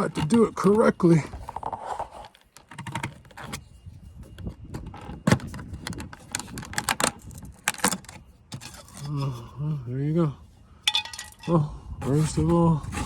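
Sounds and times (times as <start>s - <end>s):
plastic clicks and scrapes: 1.3s - 9.1s.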